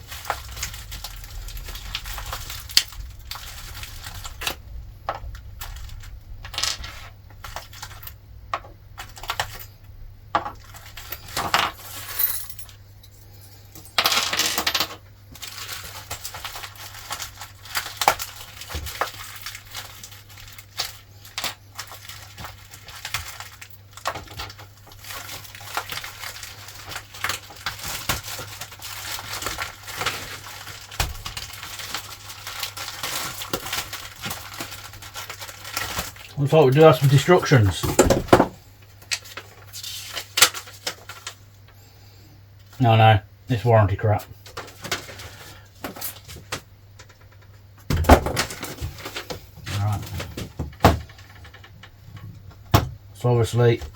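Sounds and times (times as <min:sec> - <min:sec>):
small metal parts clinking: 0:10.4 - 0:15.7.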